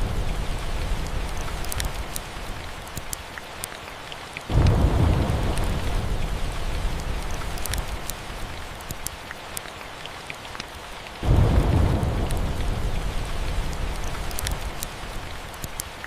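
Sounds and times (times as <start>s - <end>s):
thunder rumble: 0.0s - 2.5s, 4.5s - 8.6s, 11.2s - 15.5s
steady rain: 0.0s - 16.0s
faint crackles: 0.2s - 16.0s.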